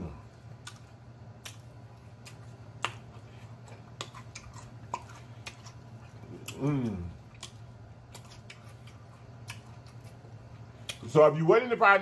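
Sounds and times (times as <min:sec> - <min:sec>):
low steady hum: 0:00.0 - 0:12.0
wet mouth clicks and smacks: 0:00.6 - 0:03.1, 0:07.4 - 0:10.2, 0:10.8 - 0:11.0.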